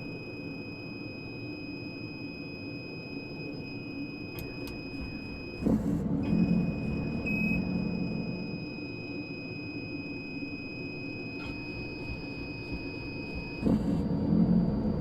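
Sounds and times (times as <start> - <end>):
high-pitched whine: 0.0 - 15.0
helicopter cabin rumble: 4.4 - 8.7, 11.4 - 15.0.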